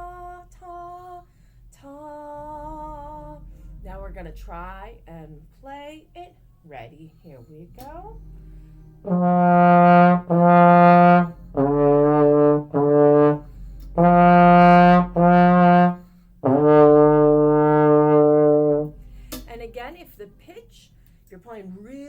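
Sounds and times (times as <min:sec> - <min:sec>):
trombone playing a simple tune: 0:08.2 - 0:19.4.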